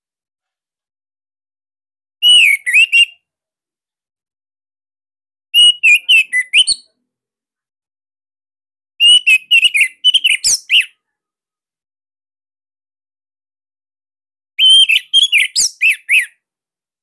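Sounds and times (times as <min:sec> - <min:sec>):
thrush singing whistled notes: 0:02.2 - 0:03.2, 0:05.6 - 0:06.9, 0:09.0 - 0:11.0, 0:14.6 - 0:16.4.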